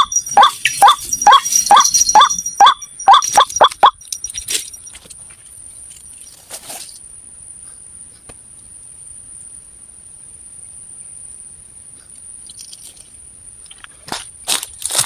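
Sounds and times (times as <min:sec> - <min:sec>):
high-pitched insect trill: 0:00.0 - 0:07.0
rustle: 0:04.0 - 0:15.0.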